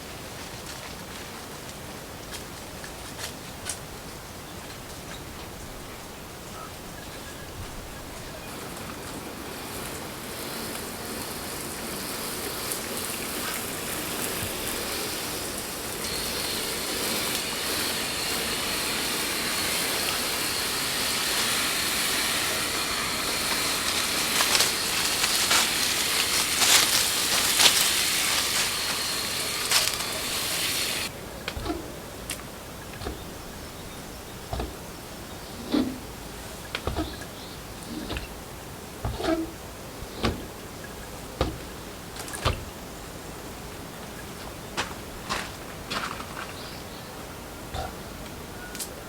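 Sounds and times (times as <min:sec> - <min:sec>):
cooking sizzling hiss: 0:08.9 - 0:32.3.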